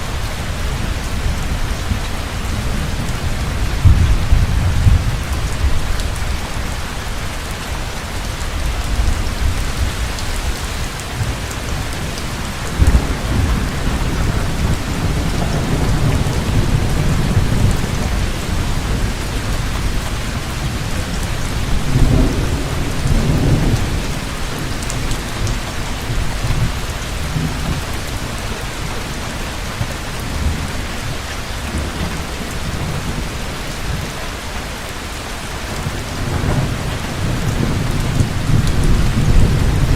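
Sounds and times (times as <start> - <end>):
rolling thunder: 0.0 - 6.8, 8.6 - 28.2, 35.7 - 39.9
heavy rain falling: 0.0 - 39.9.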